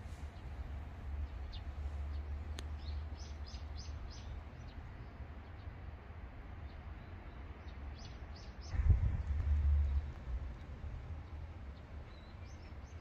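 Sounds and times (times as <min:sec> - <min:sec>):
small birds chirping: 0:01.2 - 0:05.6, 0:11.2 - 0:13.0
low background rumble: 0:08.6 - 0:13.0.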